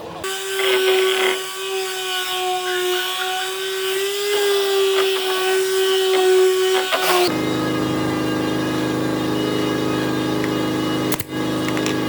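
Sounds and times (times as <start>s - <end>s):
power tool motor whining: 0.2s - 12.0s
sharp clicks: 10.4s - 12.0s.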